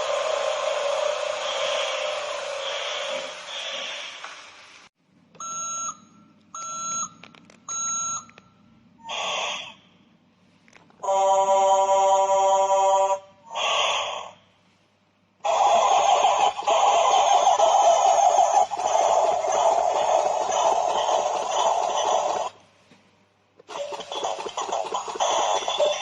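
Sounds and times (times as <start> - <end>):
loud steady rushing noise: 0.0 - 4.6
short electronic beeps: 5.4 - 8.6.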